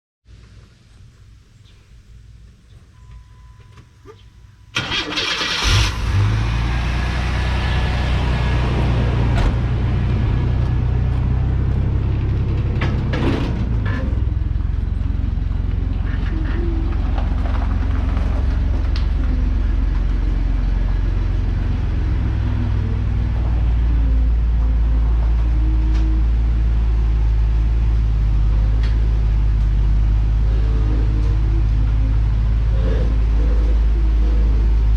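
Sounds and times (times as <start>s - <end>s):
pickup engine cranking and idling: 4.5s - 32.7s.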